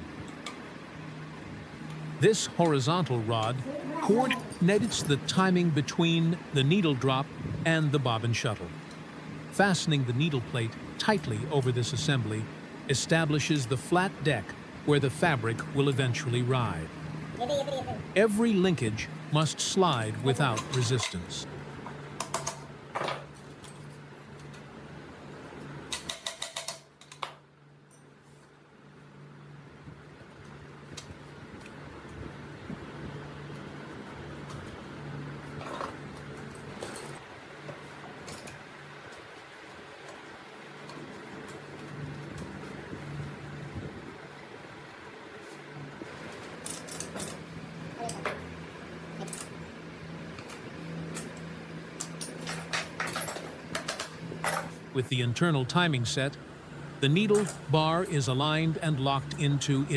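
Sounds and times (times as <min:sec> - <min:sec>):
steady low hum: 0:00.0 - 0:26.2, 0:26.8 - 0:59.9.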